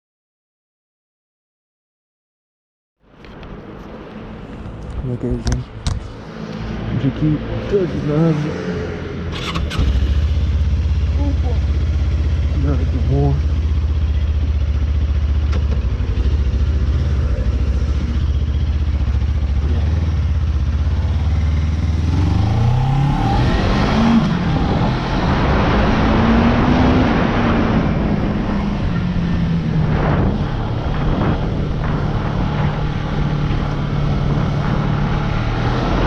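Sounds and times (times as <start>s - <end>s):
motorcycle engine: 4.8s - 36.0s
wind noise on microphone: 21.8s - 36.0s.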